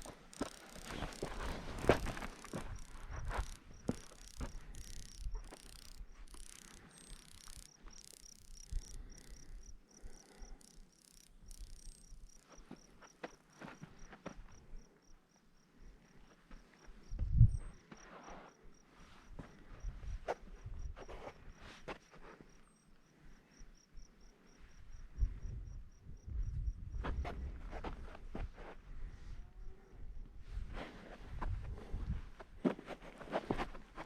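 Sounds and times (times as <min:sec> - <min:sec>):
footsteps on dry ground: 0:00.0 - 0:04.7
insect chirping: 0:00.0 - 0:28.2.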